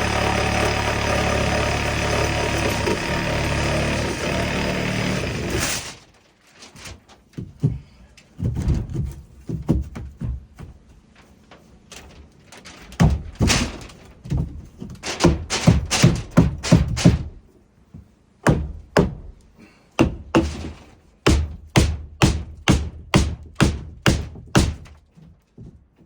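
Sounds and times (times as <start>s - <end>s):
motor running: 0.0s - 6.0s
wooden knocks and thumps: 7.3s - 10.9s.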